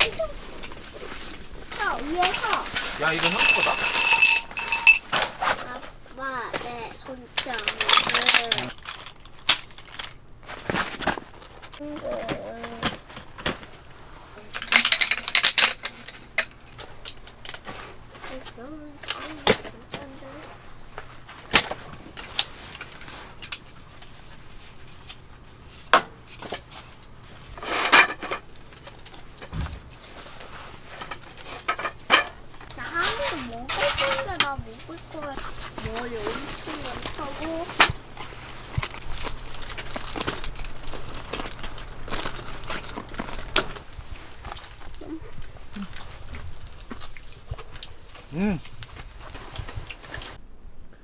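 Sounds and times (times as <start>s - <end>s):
objects knocking and clicking: 0.0s - 5.7s, 7.3s - 13.7s, 14.4s - 17.8s, 27.6s - 45.0s
rustling scrape: 0.0s - 50.4s
steady low hum: 0.0s - 50.9s
dull thump: 29.5s - 30.2s.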